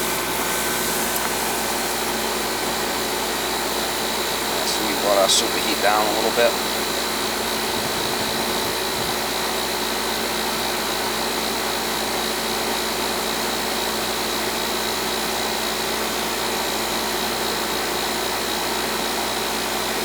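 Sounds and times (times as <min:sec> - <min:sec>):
air conditioner unit whooshing: 0:00.0 - 0:11.8
high whine: 0:04.3 - 0:09.5.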